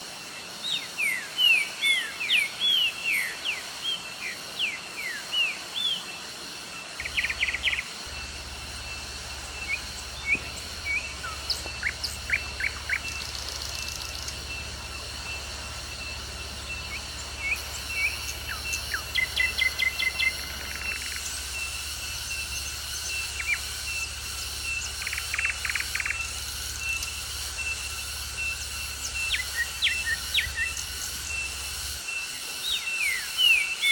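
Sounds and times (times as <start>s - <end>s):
thin steady high tone: 0.0s - 33.9s
birds chirping and trilling: 0.4s - 33.9s
low steady hum: 7.0s - 32.0s.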